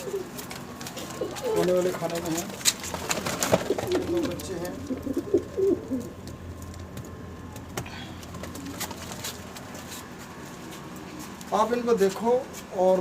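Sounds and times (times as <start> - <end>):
pigeon cooing: 0.0 - 2.4, 3.1 - 6.2, 7.9 - 9.3.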